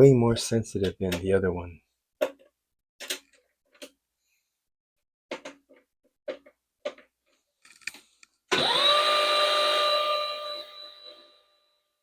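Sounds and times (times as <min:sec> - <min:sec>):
sewing machine whining: 0:08.5 - 0:11.6.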